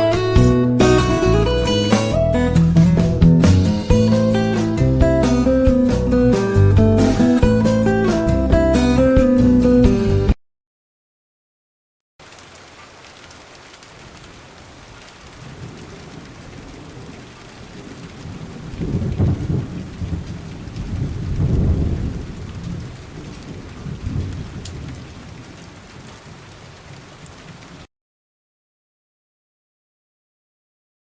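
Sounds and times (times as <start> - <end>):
steady rain: 12.2 - 27.9
rolling thunder: 14.2 - 27.9.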